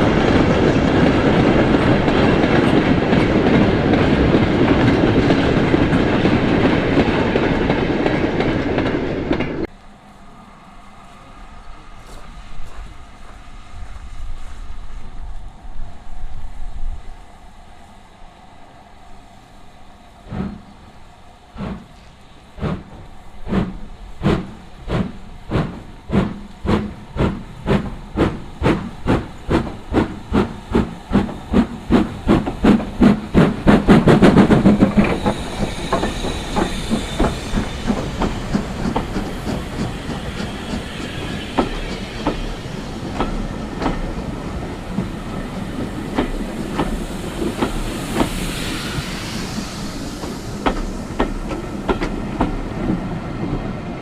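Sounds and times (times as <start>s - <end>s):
train rolling: 0.0s - 54.0s
steam locomotive chuffing: 20.2s - 53.8s.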